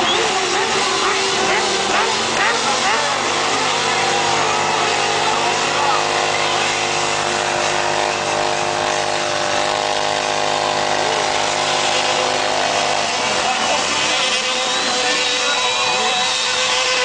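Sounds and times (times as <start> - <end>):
motorcycle engine revs: 0.0 - 17.0
motorcycle engines droning: 0.0 - 17.0.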